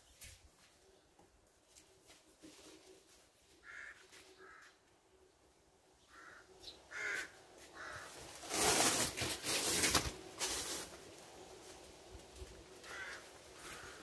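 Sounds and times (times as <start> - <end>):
crow-like bird calls: 3.6 - 4.8, 6.0 - 8.2, 12.8 - 14.0.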